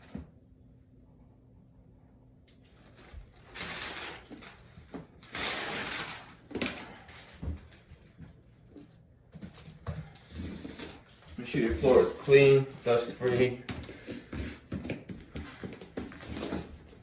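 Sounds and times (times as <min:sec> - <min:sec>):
tearing and handling noises: 0:02.5 - 0:17.0.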